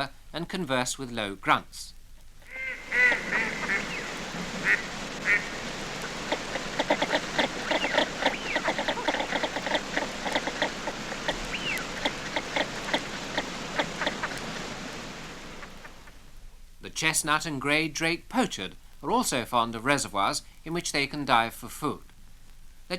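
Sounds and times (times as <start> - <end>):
ducks calling with low grunts: 2.4 - 16.3.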